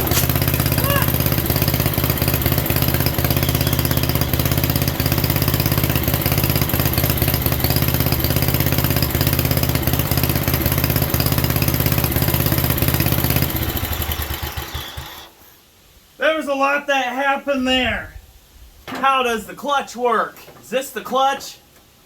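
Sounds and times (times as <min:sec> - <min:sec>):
small engine running: 0:00.0 - 0:15.4.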